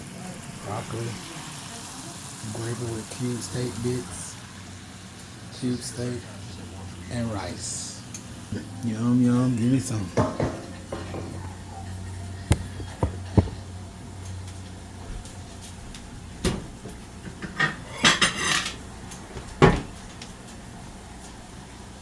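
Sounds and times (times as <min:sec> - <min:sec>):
dishes and cutlery clacking: 0:10.1 - 0:13.7, 0:16.4 - 0:20.3.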